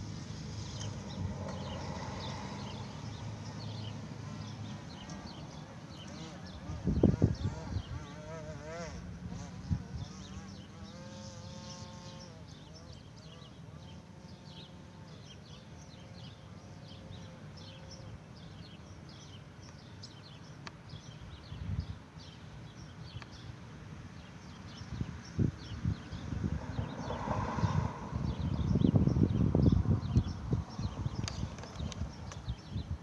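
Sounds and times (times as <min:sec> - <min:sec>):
birds or insects chirping: 0:00.0 - 0:33.0
wind rumble on microphone: 0:06.4 - 0:10.6, 0:20.9 - 0:23.4, 0:24.7 - 0:33.0.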